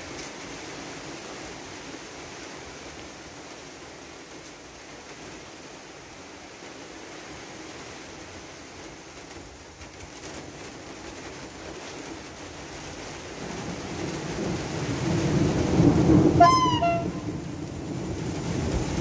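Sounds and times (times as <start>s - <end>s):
train wheels rumbling on rail: 8.8s - 19.0s
brief high tone: 16.4s - 17.3s.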